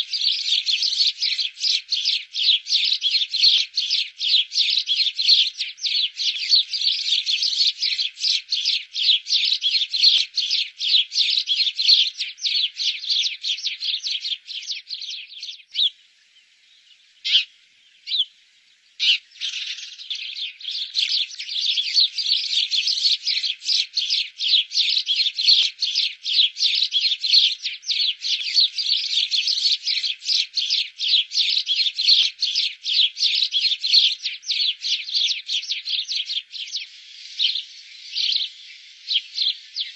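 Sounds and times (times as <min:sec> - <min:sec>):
birds chirping rapidly: 0:00.0 - 0:39.9.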